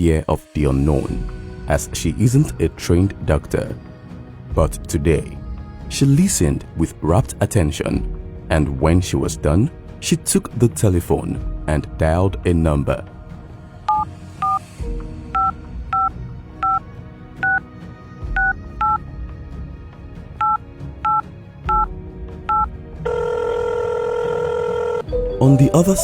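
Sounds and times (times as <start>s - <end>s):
telephone keypad beeps: 13.9s - 14.6s, 15.4s - 16.8s, 17.4s - 17.6s, 20.4s - 21.9s, 22.5s - 23.3s
steady telephone line tone: 22.5s - 26.0s.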